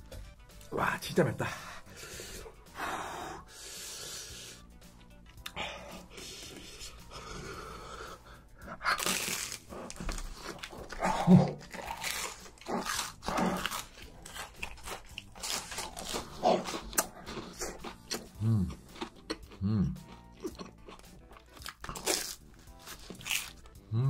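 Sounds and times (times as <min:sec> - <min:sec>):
crunchy chewing: 0:08.7 - 0:23.8.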